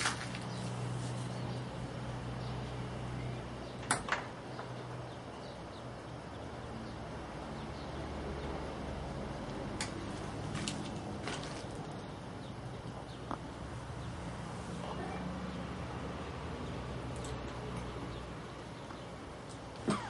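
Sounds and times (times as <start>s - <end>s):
low electrical hum: 0.0s - 20.0s
sharp clicks: 17.1s - 17.9s.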